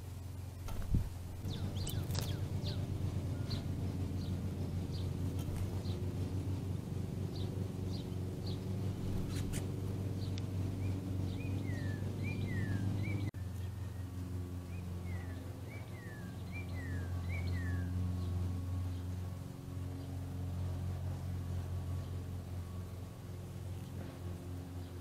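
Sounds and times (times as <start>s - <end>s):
songbirds chirping: 0.0s - 25.0s
steady low hum: 0.0s - 25.0s
downslurred whistled bird notes: 10.8s - 13.3s.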